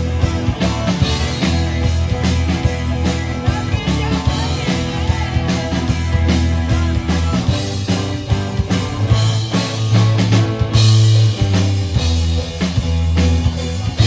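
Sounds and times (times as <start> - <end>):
bass notes: 0.0 - 14.0
drum beat: 0.0 - 14.0
guitar: 0.0 - 14.0.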